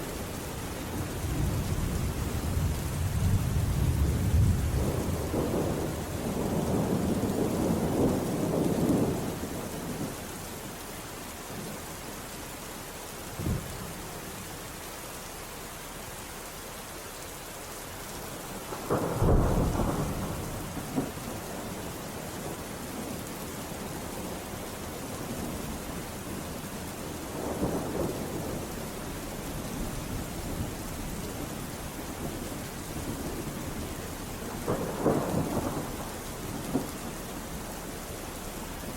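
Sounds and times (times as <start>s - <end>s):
heavy rain: 0.0s - 38.9s
thunder rolling: 18.7s - 21.3s
sharp thunderclap: 18.8s - 21.2s, 34.6s - 36.9s.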